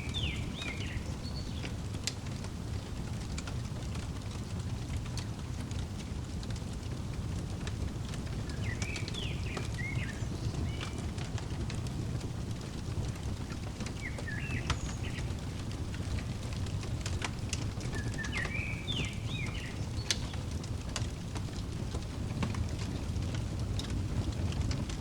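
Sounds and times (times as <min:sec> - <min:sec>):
bird chirping: 0:00.0 - 0:01.8, 0:08.4 - 0:11.2, 0:13.8 - 0:16.3, 0:17.8 - 0:20.4
wood fire crackling and popping: 0:00.0 - 0:25.0.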